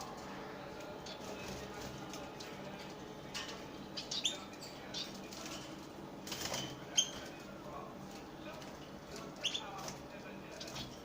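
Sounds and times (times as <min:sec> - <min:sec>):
finches chirping: 0:04.0 - 0:05.2.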